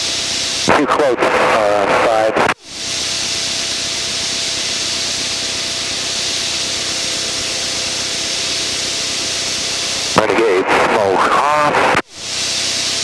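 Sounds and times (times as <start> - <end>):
engine and airflow hiss: 0.0 - 13.0.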